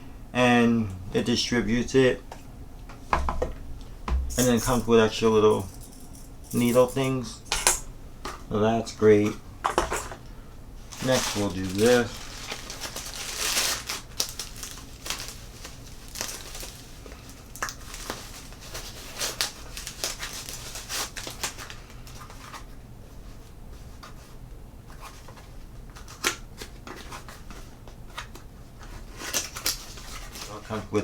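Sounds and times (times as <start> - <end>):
packaging rustling and crinkling: 9.8 - 22.8, 25.0 - 30.9.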